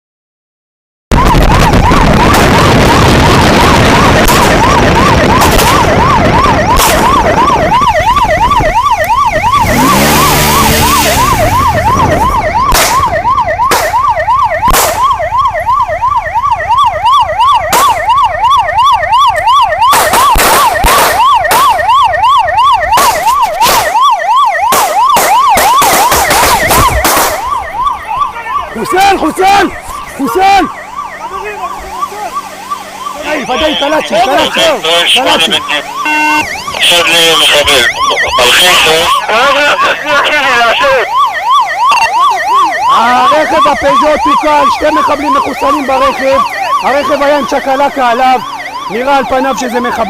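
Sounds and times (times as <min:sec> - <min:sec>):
engine and road noise: 0:01.1 - 0:50.0
police siren yelping: 0:01.1 - 0:50.0
gunshots: 0:04.1 - 0:04.7, 0:05.3 - 0:05.9, 0:06.7 - 0:07.2, 0:12.6 - 0:15.1, 0:19.9 - 0:21.9, 0:22.9 - 0:24.0, 0:24.6 - 0:27.5.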